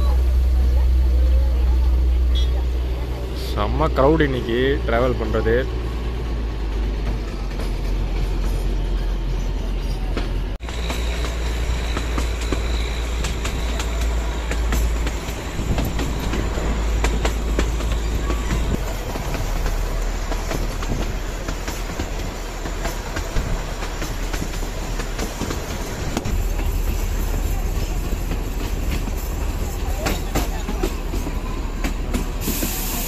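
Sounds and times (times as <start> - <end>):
train rumble: 0.0 - 33.0
wheels clattering over rails: 10.0 - 32.5.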